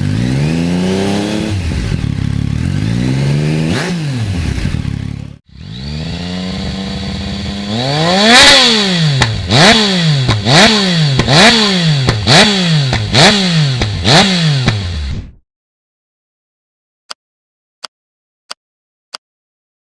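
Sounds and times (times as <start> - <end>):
motorcycle engine idling and revving: 0.0 - 15.2.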